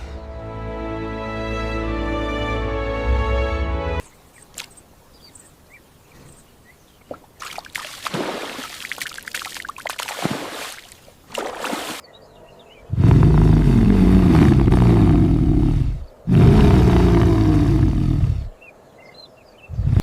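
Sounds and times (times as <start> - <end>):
water splashing and sloshing: 4.3 - 5.0, 7.0 - 12.1.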